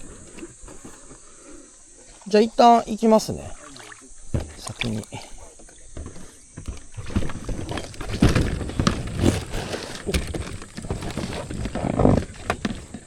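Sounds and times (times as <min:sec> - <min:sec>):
knocks and scuffs of gear: 0:04.4 - 0:13.0.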